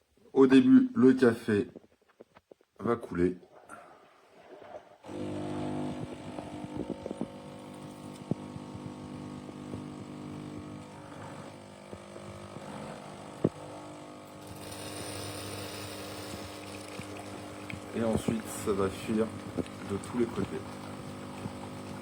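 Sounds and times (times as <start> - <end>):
espresso machine pump humming: 5.1 - 22.0.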